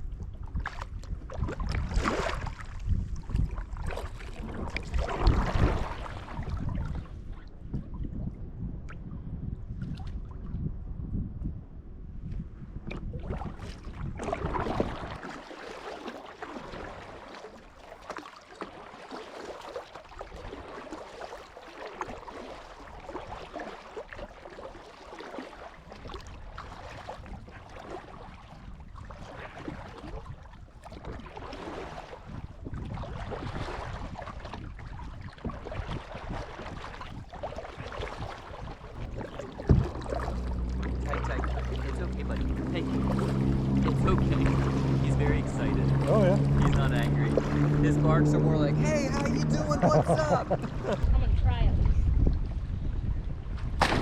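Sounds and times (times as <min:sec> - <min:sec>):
water splashing around kayak: 0:00.0 - 0:11.5, 0:12.2 - 0:54.0
wind buffeting microphone: 0:00.0 - 0:15.3, 0:25.8 - 0:54.0
sharp thump: 0:53.8 - 0:54.0.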